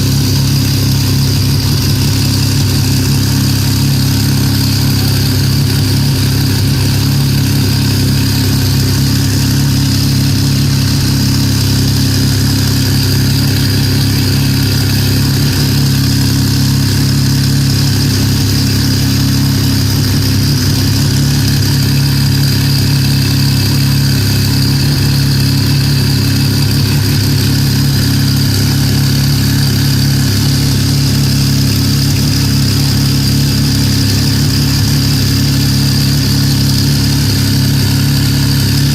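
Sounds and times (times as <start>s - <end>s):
race car engine idling: 0.0s - 38.9s.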